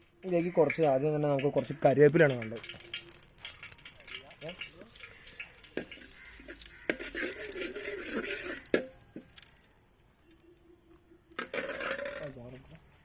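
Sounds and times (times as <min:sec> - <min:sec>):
leaves sizzling in hot oil: 0:00.2 - 0:10.6.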